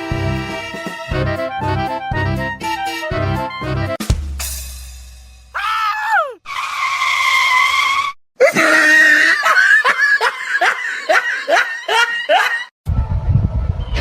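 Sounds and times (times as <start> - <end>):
high-pitched shrieking cries: 5.6 - 8.1.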